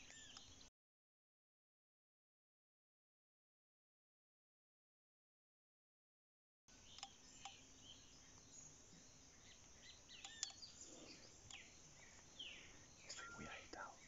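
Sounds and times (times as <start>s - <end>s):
small birds chirping: 0.0s - 0.7s, 6.7s - 14.0s.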